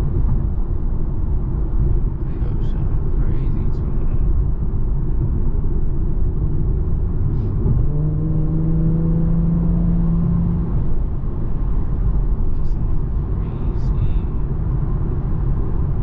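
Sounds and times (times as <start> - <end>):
engine and road rumble: 0.0 - 16.0
car engine note rising: 7.4 - 11.0.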